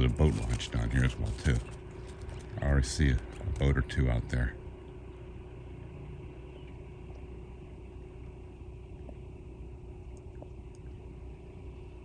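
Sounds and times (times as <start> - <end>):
low engine rumble: 0.0 - 12.0
faint ticks: 10.0 - 11.0.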